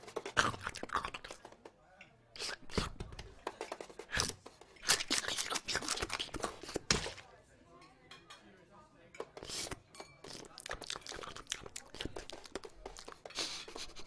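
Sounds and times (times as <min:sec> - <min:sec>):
cartoon crackling and crunching: 0:00.1 - 0:01.5, 0:04.1 - 0:07.2, 0:10.3 - 0:13.2.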